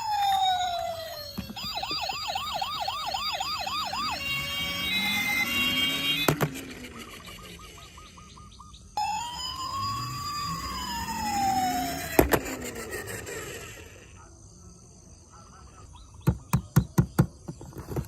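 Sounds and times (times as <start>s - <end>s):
toy siren wailing: 0.0s - 14.1s.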